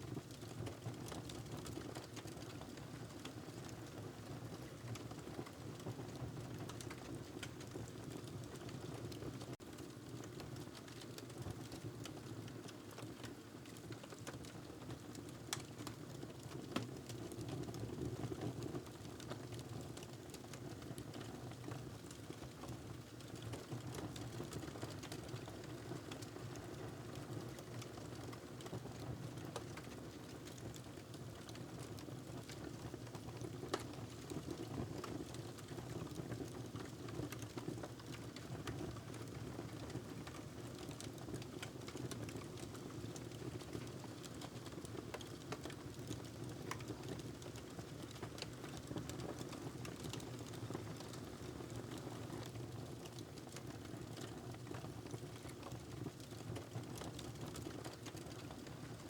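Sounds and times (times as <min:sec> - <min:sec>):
wood fire crackling: 0:32.4 - 0:33.9, 0:40.2 - 0:52.0.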